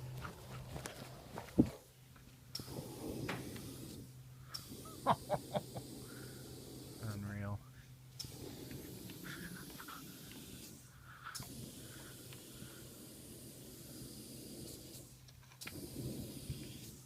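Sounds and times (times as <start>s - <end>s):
rushing hiss of air: 2.6s - 7.4s, 8.2s - 17.0s.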